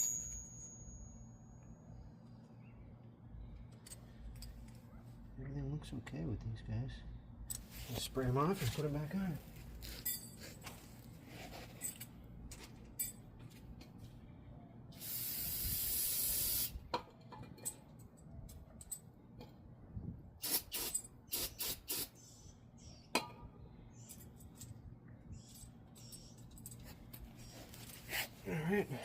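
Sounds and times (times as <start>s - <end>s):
aerosol spray hissing: 15.0s - 16.8s, 20.4s - 22.1s.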